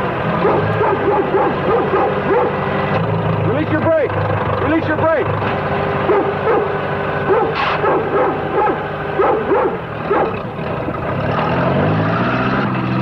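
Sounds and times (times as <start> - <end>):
tractor engine hum: 0.0 - 13.0
dog barking: 0.3 - 2.8, 6.0 - 10.6.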